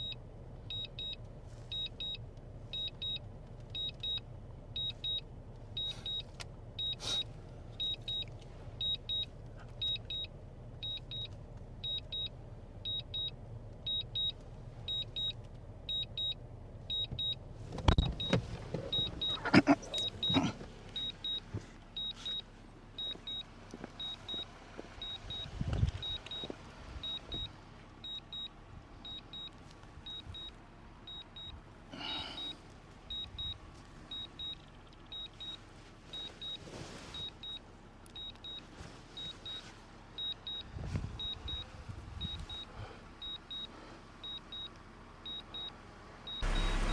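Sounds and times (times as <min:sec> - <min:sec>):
electronic double beep: 0:46.3 - 0:46.9.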